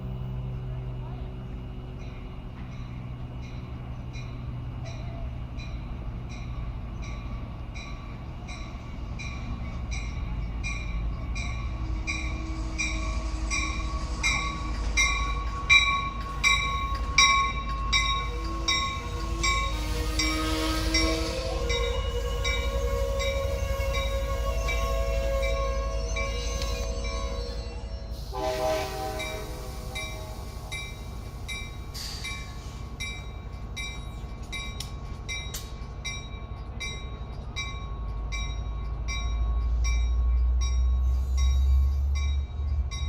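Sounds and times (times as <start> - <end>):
train rumbling past: 0.0 - 43.0
railroad bell ringing: 1.4 - 43.0
steady horn tones: 17.8 - 30.5.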